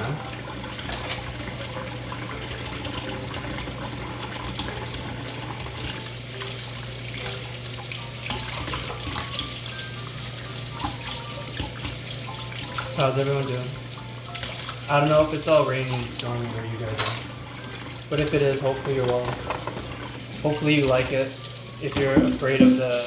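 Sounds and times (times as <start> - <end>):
tap running into sink: 4.3 - 10.2, 14.4 - 23.0.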